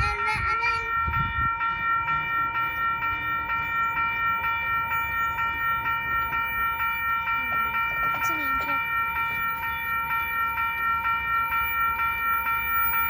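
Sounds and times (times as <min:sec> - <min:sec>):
crossing signal bell ringing: 0:00.0 - 0:13.0.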